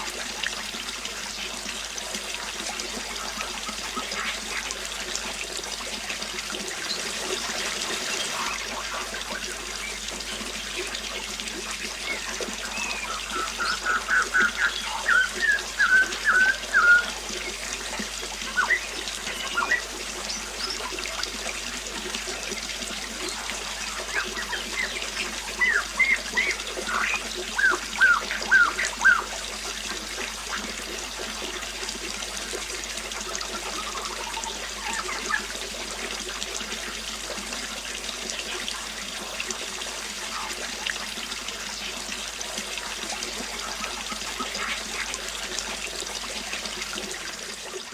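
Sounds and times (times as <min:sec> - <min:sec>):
water trickling: 0:00.0 - 0:47.9
songbird singing: 0:08.0 - 0:21.1, 0:23.3 - 0:29.4, 0:33.6 - 0:35.5.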